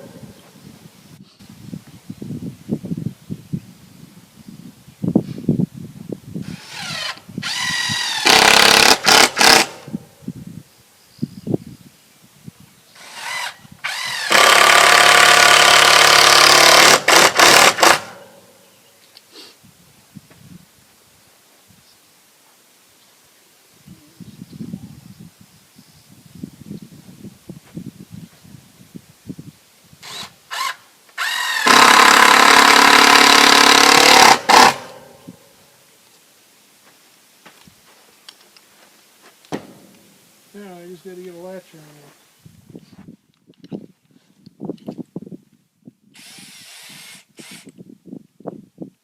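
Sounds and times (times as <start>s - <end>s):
power drill driving screw into wood: 6.4s - 10.0s, 13.0s - 18.3s, 30.0s - 35.1s, 46.2s - 47.8s.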